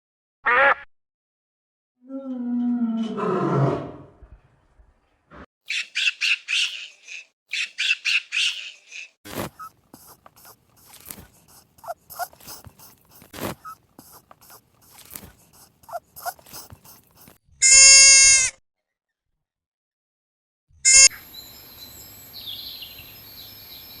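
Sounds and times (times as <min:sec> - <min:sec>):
birds chirping: 0:05.6 - 0:17.3
loud steady-pitched animal call: 0:09.6 - 0:18.5.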